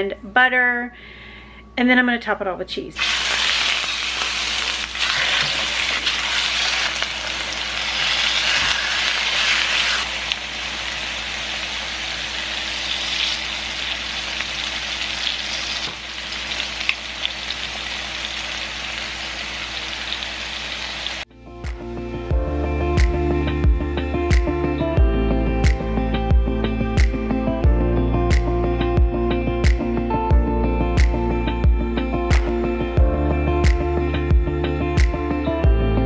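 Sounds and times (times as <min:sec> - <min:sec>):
chicken sizzling in frying pan: 0:03.0 - 0:21.3.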